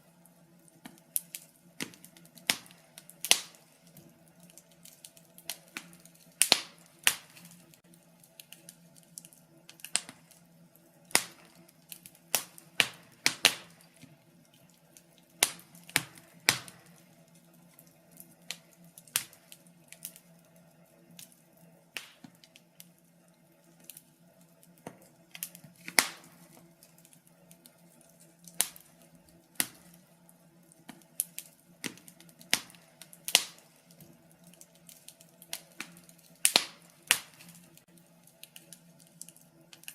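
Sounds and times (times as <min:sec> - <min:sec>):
wood fire crackling: 0:00.0 - 0:39.9
sharp snaps and pops: 0:00.2 - 0:39.9.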